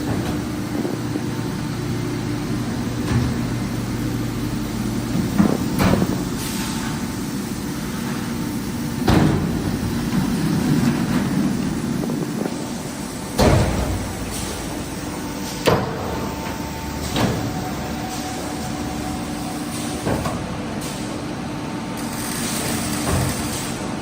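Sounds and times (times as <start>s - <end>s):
machinery humming: 0.0s - 24.0s
machine clunks: 13.3s - 18.8s.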